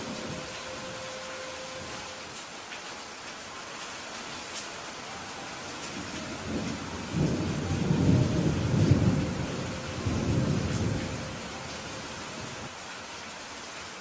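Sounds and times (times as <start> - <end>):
steady rain: 0.0 - 14.0
rolling thunder rumble: 5.9 - 12.7.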